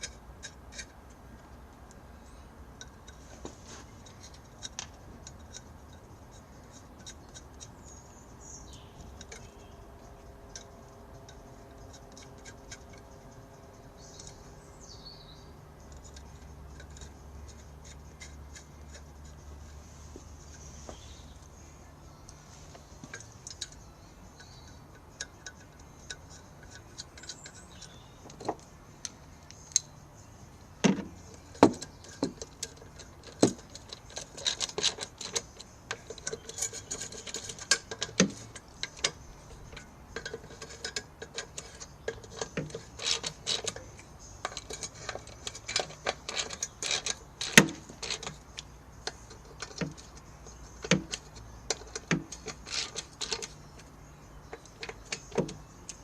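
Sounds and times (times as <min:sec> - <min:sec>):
metallic clicks of hand tools: 0:15.8 - 0:19.8, 0:23.0 - 0:30.0, 0:30.8 - 0:56.0.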